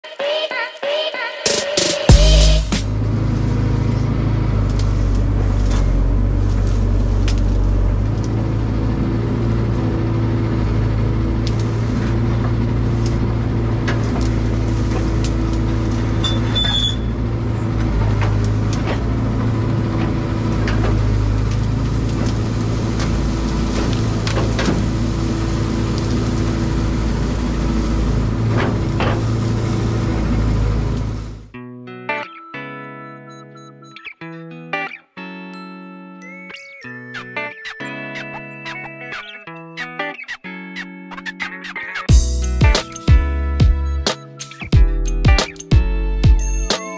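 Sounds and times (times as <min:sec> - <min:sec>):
excavator diesel engine running: 0:02.2 - 0:31.5, 0:42.1 - 0:46.7.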